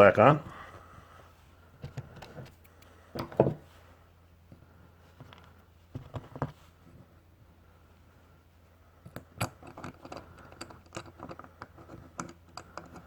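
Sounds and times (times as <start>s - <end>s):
small metal parts clicking: 9.1s - 13.0s.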